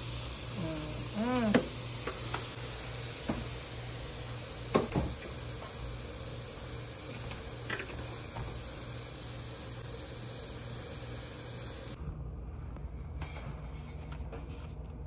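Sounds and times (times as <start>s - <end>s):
meat sizzling on a griddle: 0.0s - 12.0s.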